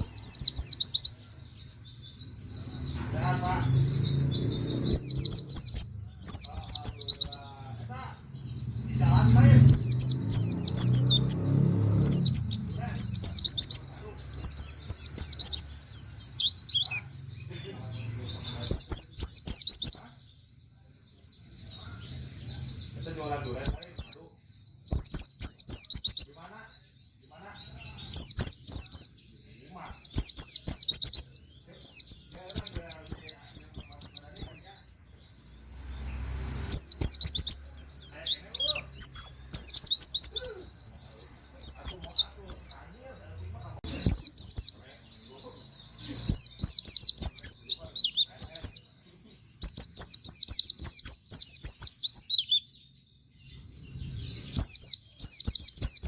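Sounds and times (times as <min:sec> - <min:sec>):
bird chirping high notes: 0:00.0 - 0:17.2
bird chirping rapidly: 0:00.0 - 0:56.0.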